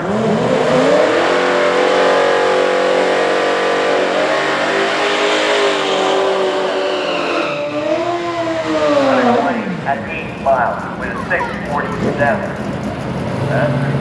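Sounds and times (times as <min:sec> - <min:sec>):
racing engine at full throttle: 0:00.0 - 0:07.0.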